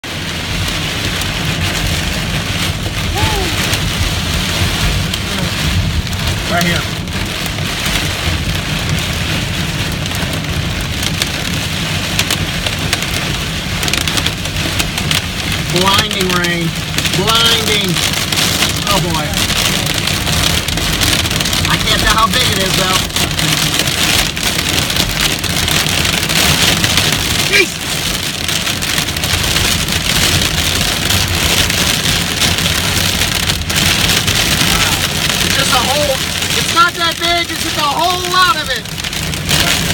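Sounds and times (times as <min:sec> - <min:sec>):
heavy rain and hail hiss: 0:00.0 - 0:39.9
low rumble: 0:00.0 - 0:39.9
hailstones striking hard surfaces: 0:00.6 - 0:39.9.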